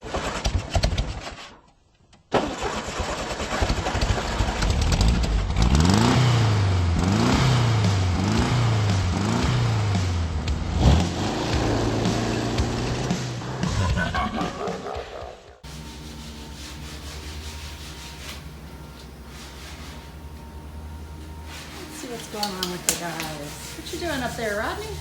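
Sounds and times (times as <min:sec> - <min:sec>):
car engine revving: 0:05.0 - 0:13.7, 0:15.6 - 0:25.0.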